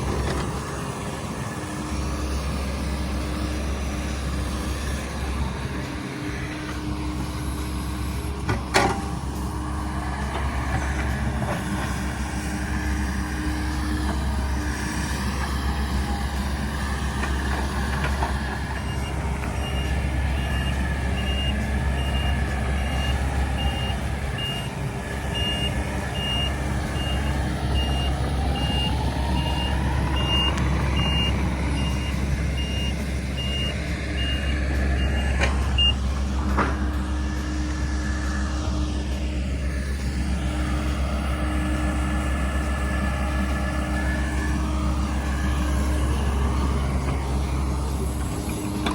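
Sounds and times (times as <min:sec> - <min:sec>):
heavy diesel engine running: 0:00.0 - 0:48.9
back-up alarm beeping: 0:25.3 - 0:36.0.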